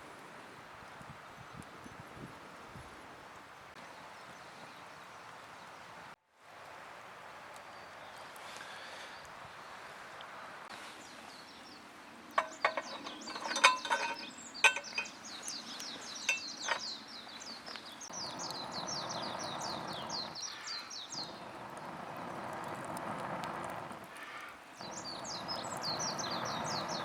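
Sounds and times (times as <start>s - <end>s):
sharp clicks and knocks: 12.4s - 15.1s
small bird chirping: 12.4s - 21.5s, 24.8s - 27.0s.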